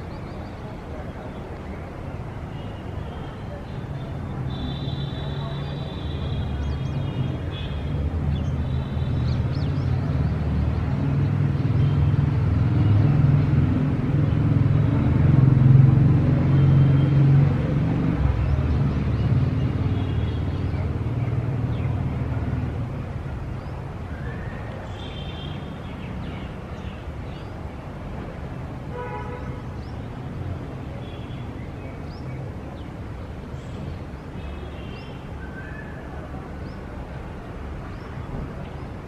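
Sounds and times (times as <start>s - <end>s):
vehicle engine rumble passing: 9.2s - 23.6s.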